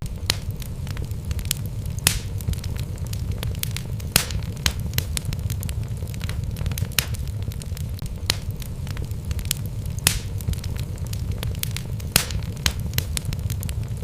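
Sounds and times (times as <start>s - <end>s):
fire rumbling in fireplace: 0.0s - 14.0s
wood crackling and popping: 0.0s - 14.0s.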